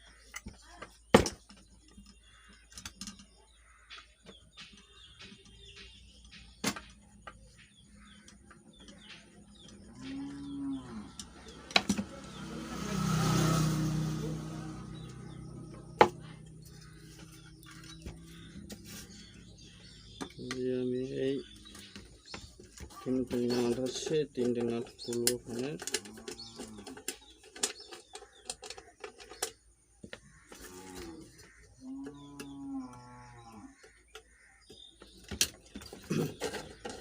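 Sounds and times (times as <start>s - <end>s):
sharp clicks and knocks: 0.3s - 10.4s
cow mooing: 9.9s - 11.3s, 30.7s - 33.8s.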